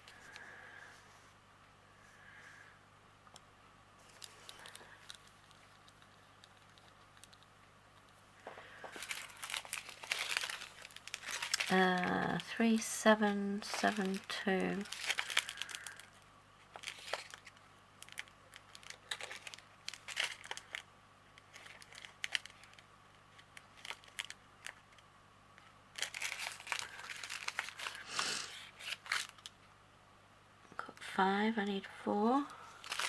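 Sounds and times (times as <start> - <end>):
plastic bags crinkling: 4.0 - 7.5, 8.5 - 25.0, 25.9 - 29.6, 32.3 - 33.0.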